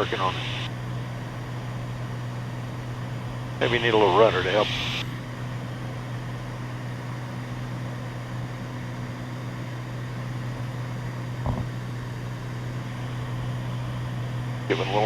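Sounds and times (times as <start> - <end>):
light aircraft engine and propeller drone: 0.0 - 15.0.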